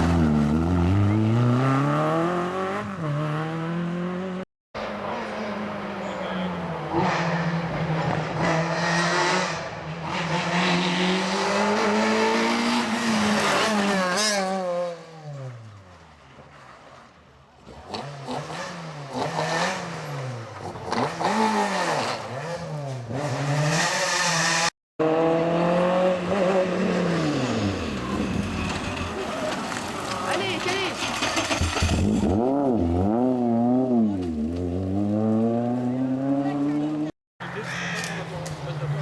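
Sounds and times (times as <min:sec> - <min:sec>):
car accelerating: 0:00.0 - 0:15.7
rally car engines at high revs: 0:00.0 - 0:15.7, 0:17.6 - 0:39.0.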